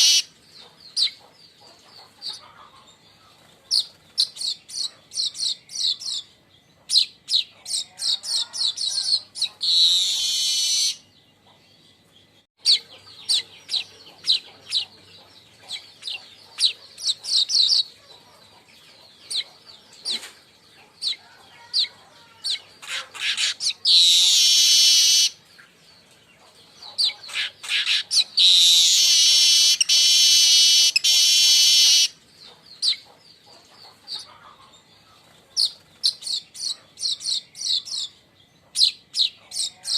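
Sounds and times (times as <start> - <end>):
buzzy wheezing bird song: 0.0 - 0.3, 6.9 - 11.1, 21.9 - 25.4, 27.0 - 32.2
birds chattering high chips: 0.0 - 3.0, 12.6 - 34.9.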